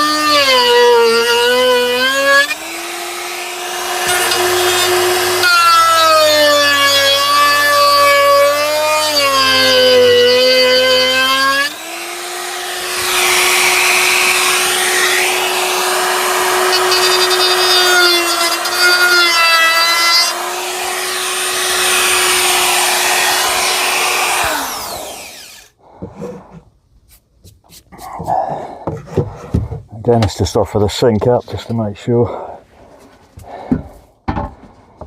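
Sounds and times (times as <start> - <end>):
jigsaw winding down: 0.0 - 25.7
electric jigsaw cutting wood: 0.0 - 25.8.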